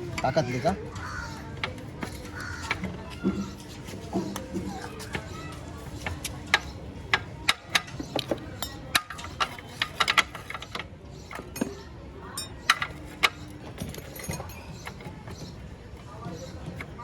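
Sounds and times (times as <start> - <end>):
spanners clinking on metal: 6.5 - 15.5.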